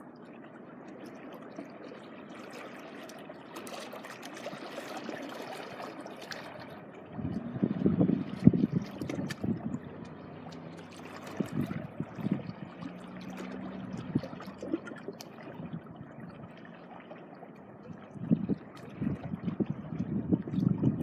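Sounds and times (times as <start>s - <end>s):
small waves washing on beach: 0.0s - 21.0s
wind gusts on microphone: 7.1s - 10.4s, 11.3s - 12.6s, 17.9s - 21.0s.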